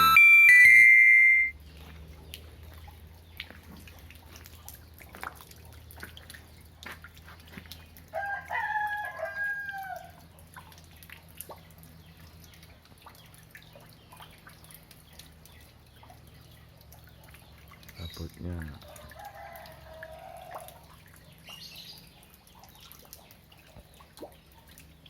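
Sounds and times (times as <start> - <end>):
rainwater dripping: 1.6 - 25.0
rooster crowing: 8.2 - 10.2, 18.9 - 20.7.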